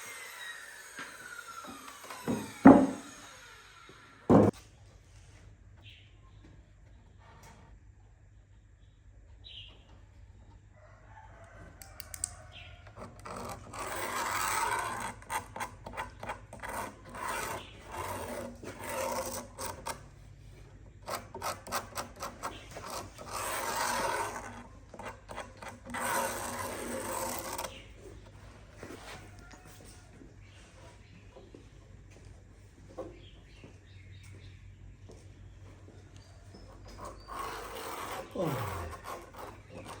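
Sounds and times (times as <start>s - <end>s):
scraping on wood by hand: 12.9s - 20.2s, 21.0s - 30.0s, 36.6s - 40.0s.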